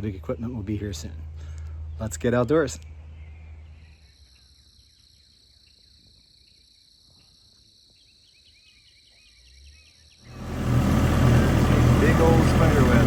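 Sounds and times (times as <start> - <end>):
insects trilling: 3.8 - 10.4.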